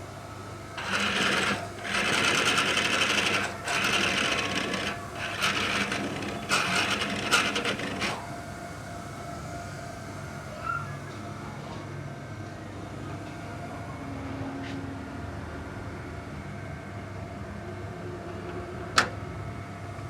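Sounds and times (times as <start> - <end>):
small machine rattling: 0.8 - 8.3.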